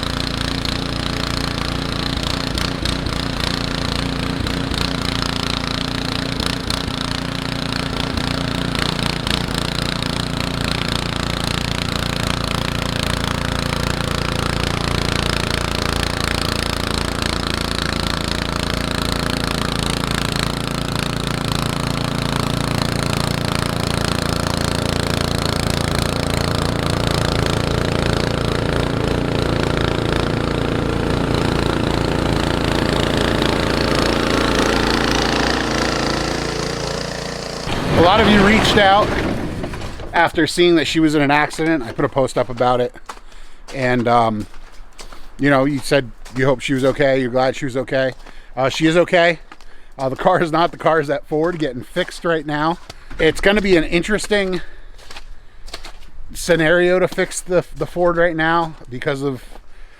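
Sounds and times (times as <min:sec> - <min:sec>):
snowblower engine running: 0:00.0 - 0:43.2.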